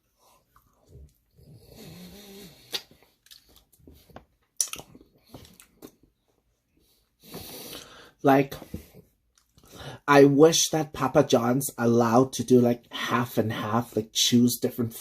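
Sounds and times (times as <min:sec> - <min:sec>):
nasal sound: 0:01.9 - 0:03.7
wet chewing: 0:02.6 - 0:06.0
lip smacks: 0:02.6 - 0:06.1
sharp mouth clicks: 0:02.7 - 0:03.6, 0:04.6 - 0:06.0.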